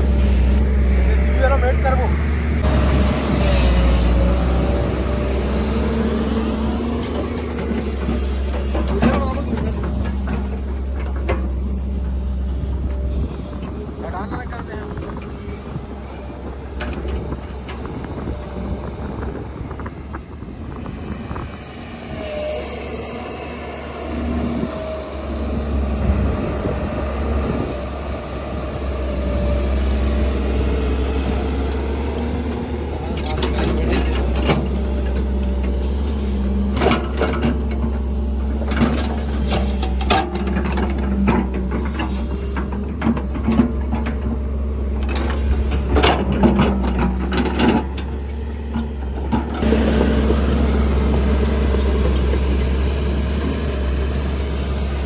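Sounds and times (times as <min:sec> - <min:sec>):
diesel machinery engine running: 0:00.0 - 0:55.0.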